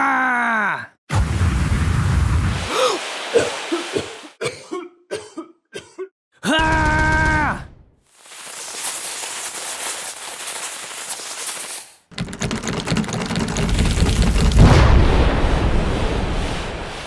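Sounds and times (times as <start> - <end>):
dense crackling: 6.6 - 17.0
low rumbling explosion: 13.8 - 17.0.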